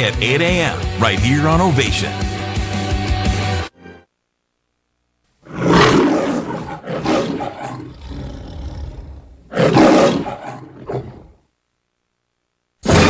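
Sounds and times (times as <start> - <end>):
animal roaring: 5.4 - 11.4.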